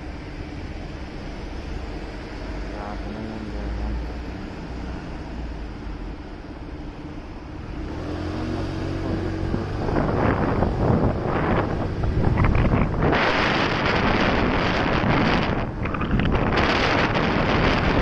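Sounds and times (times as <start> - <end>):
road noise: 0.0 - 18.0
wind buffeting microphone: 8.5 - 18.0.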